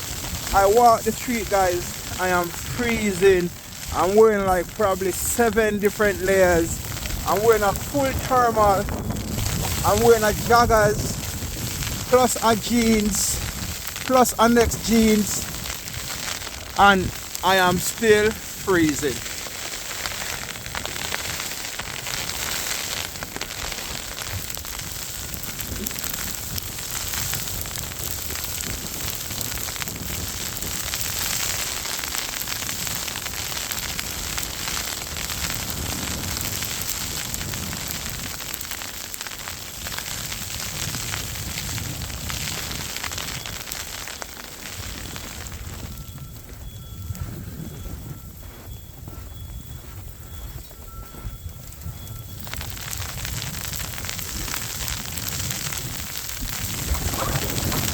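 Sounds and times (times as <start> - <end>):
storm wind on microphone: 0.0 - 19.4, 20.0 - 31.8, 33.8 - 38.4, 39.6 - 43.8, 44.6 - 57.9
snow striking microphone: 55.4 - 57.9.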